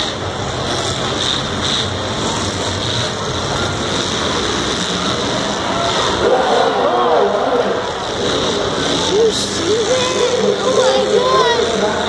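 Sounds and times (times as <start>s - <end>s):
car engines running: 0.0s - 12.0s.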